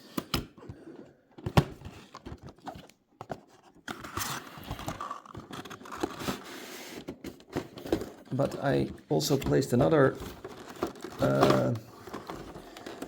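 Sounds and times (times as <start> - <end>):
packaging clicks and knocks: 0.2 - 6.4, 7.0 - 13.0
packaging rustling and scraping: 0.6 - 13.0.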